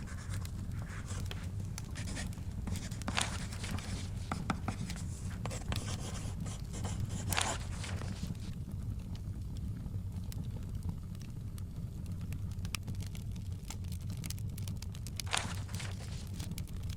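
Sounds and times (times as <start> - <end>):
book pages turning: 0.0 - 8.6, 15.1 - 16.6
wood fire crackling: 0.0 - 16.9.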